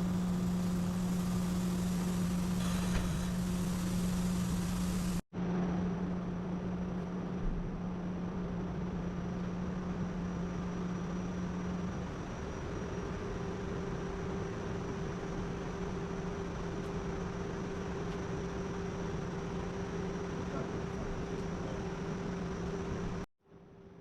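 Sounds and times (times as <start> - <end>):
machine hum: 0.0 - 6.6.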